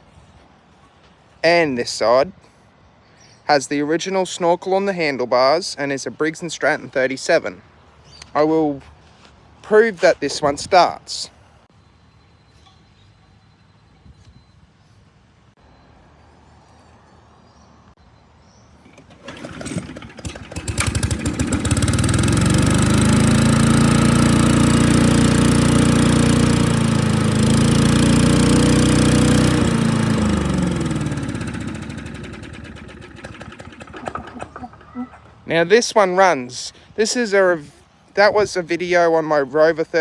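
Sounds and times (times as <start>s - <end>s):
lawn mower engine running: 18.7s - 36.7s.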